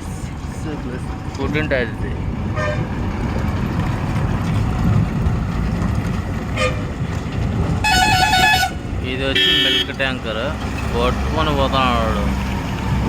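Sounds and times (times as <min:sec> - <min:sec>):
heavy truck engines rumbling: 0:00.0 - 0:13.0
truck horn toot: 0:02.6 - 0:02.9, 0:06.5 - 0:06.9, 0:07.8 - 0:10.0.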